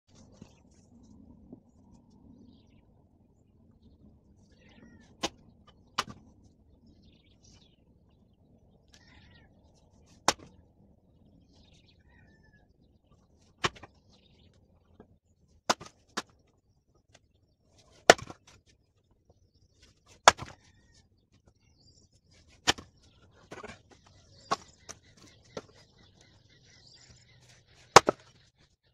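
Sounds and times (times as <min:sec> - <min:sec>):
faint bird chirps: 0:00.2 - 0:10.6, 0:11.2 - 0:13.5, 0:19.0 - 0:28.9.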